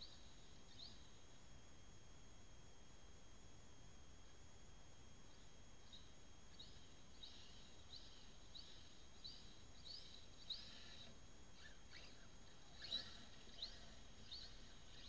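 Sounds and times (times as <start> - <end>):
faint bird chirps: 0.0 - 1.5, 5.2 - 15.0.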